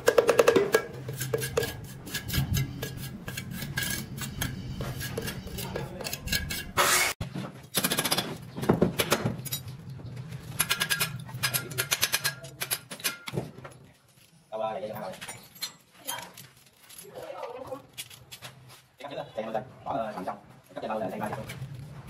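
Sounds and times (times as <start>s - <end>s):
trowel scraping wet mortar: 0.6s - 7.2s
metallic clinks of rebar: 10.4s - 13.4s.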